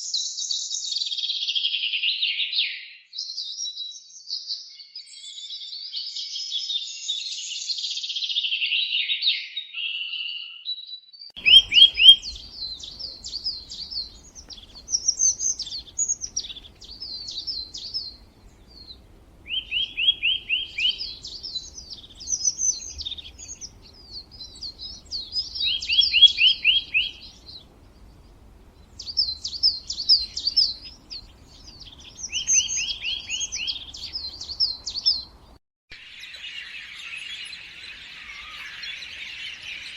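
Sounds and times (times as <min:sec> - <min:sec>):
songbird singing: 0:11.4 - 0:39.9.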